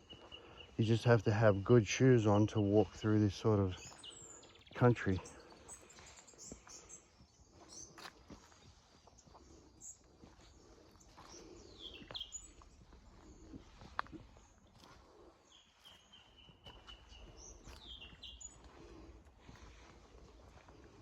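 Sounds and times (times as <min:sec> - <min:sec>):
birds whistling: 0:03.7 - 0:08.0, 0:09.8 - 0:13.6, 0:15.4 - 0:18.7.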